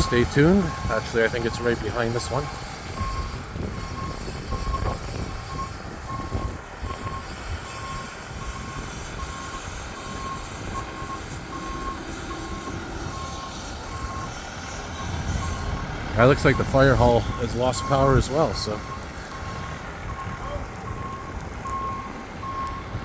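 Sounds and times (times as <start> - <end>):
reversing alarm beeping: 0.0 - 23.0
truck engine rumble: 0.0 - 23.0.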